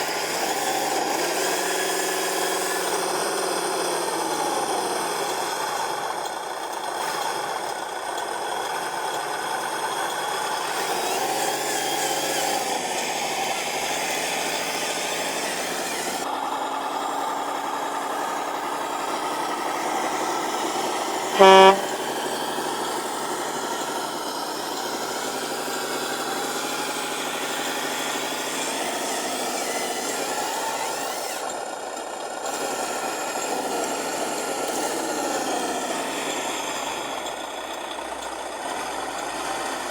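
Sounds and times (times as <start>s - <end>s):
model truck motor running: 0.0s - 39.9s
loud horn honk: 21.2s - 22.3s.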